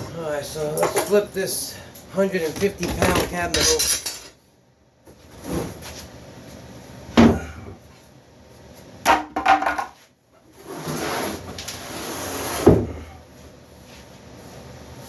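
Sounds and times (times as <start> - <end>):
heavy cabinet thump: 7.1 - 7.8, 12.6 - 13.0
cabinet scraping: 10.6 - 13.1.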